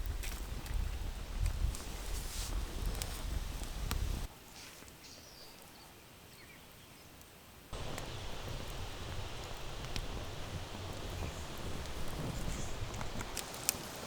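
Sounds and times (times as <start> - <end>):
heavy low rumble: 7.8 - 13.4
clicks and rustling: 7.8 - 14.0.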